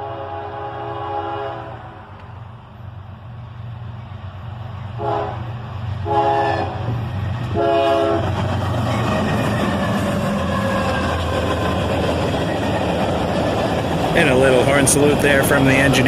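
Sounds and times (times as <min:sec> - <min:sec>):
locomotive air horn blasts: 0:00.0 - 0:02.1, 0:05.0 - 0:06.9, 0:07.5 - 0:08.3
train engine rumble: 0:00.0 - 0:16.0.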